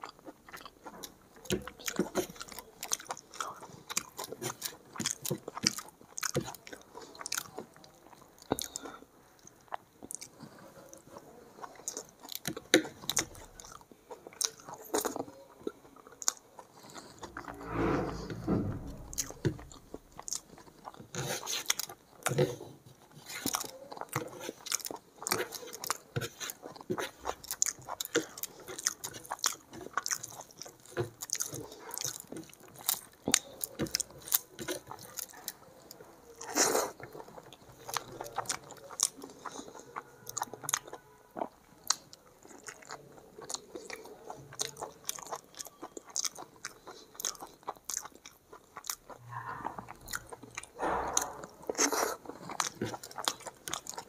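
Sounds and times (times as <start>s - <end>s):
wet chewing mouth clicks: 41.8s - 54.0s.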